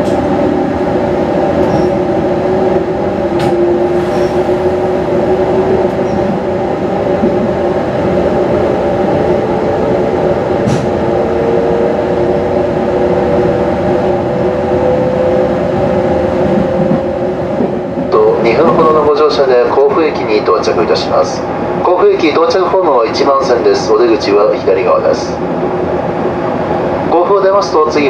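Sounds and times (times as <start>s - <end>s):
train rumble: 0.0s - 28.0s.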